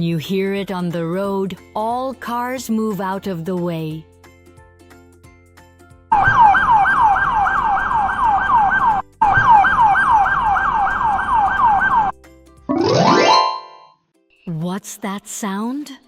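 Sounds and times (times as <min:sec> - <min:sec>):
ambulance siren yelp: 0:06.1 - 0:12.1.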